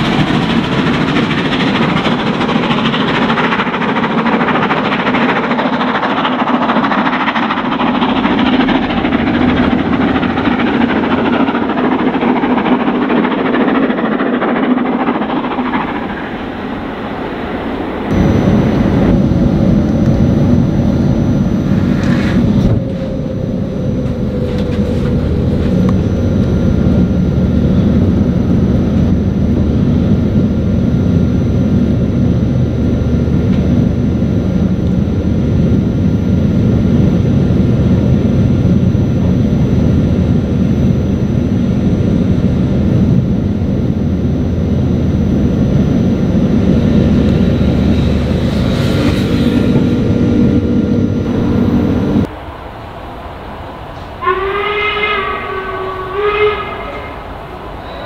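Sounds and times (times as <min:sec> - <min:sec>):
train rumbling drone: 0:00.0 - 0:58.0
faint sliding whine: 0:18.1 - 0:28.2.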